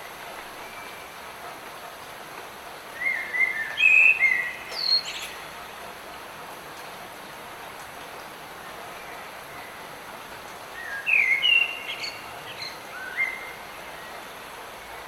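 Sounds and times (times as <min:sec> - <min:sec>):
light rain hissing: 0:00.0 - 0:15.0
bird singing whistled notes: 0:03.0 - 0:05.4, 0:10.8 - 0:14.1.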